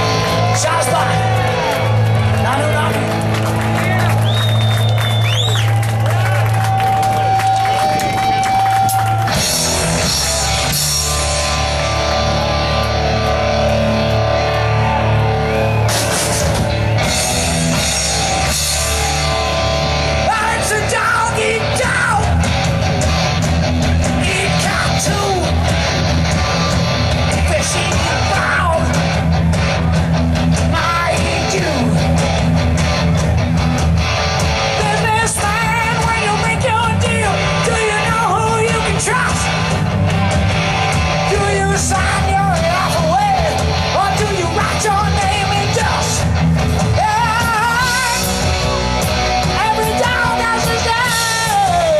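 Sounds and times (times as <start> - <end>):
live rock band playing: 0.0 - 51.9
person singing: 20.2 - 22.4, 24.2 - 25.6, 27.3 - 29.0, 30.7 - 32.1, 34.8 - 39.6, 41.2 - 48.7, 49.5 - 51.9.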